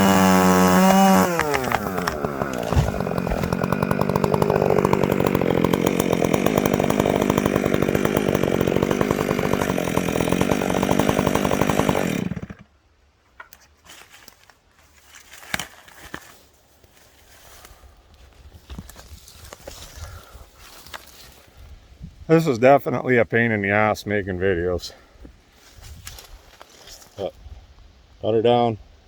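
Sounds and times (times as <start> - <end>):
chainsaw cutting wood: 0.0 - 12.7.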